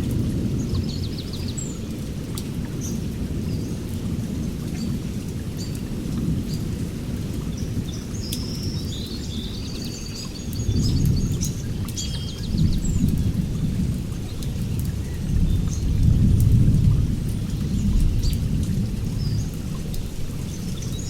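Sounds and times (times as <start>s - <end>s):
heavy rain: 0.0s - 21.0s
rolling thunder: 14.9s - 21.0s.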